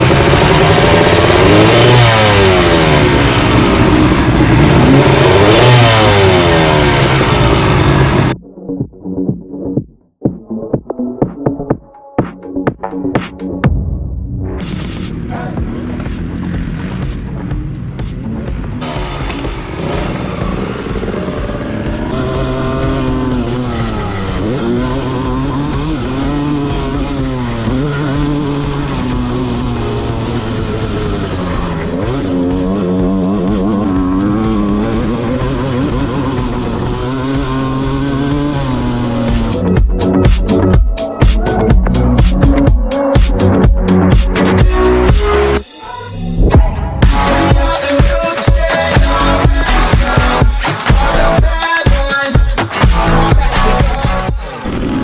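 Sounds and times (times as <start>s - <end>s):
motocross bike engine revving: 0.0s - 8.4s, 18.7s - 40.7s, 47.0s - 51.4s, 52.7s - 55.0s.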